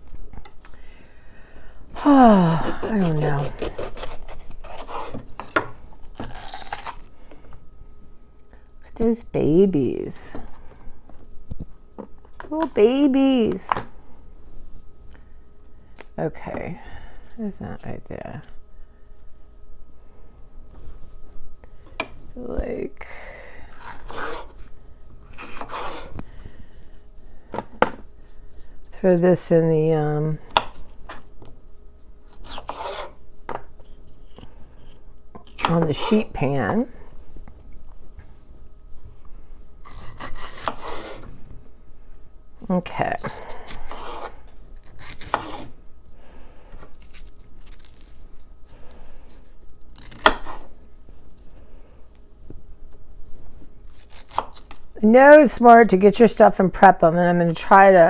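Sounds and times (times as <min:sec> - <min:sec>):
knife cutting vegetables on board: 0:02.0 - 0:07.0, 0:23.8 - 0:24.6, 0:25.3 - 0:26.2, 0:32.3 - 0:33.2, 0:39.8 - 0:41.3, 0:43.2 - 0:44.3, 0:44.9 - 0:45.8, 0:50.0 - 0:50.7, 0:53.9 - 0:54.8.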